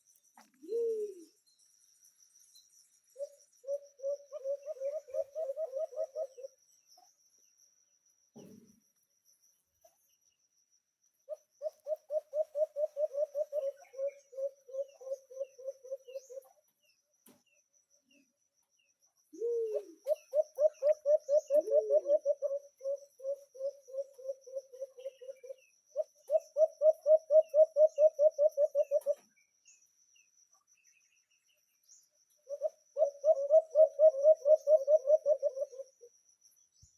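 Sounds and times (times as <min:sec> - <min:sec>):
bird rapid low hooting: 0:00.6 - 0:01.4, 0:03.2 - 0:06.6, 0:11.3 - 0:16.6, 0:19.3 - 0:29.3, 0:32.4 - 0:36.1.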